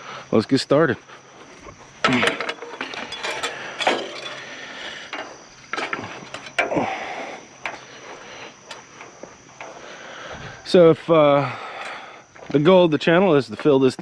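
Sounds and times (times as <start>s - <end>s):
scrap metal clanks and scrapes: 1.5s - 6.9s.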